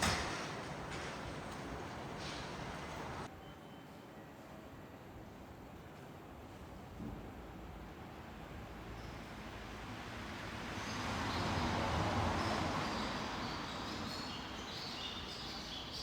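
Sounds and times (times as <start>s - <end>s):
vehicle passing by: 9.5s - 14.2s.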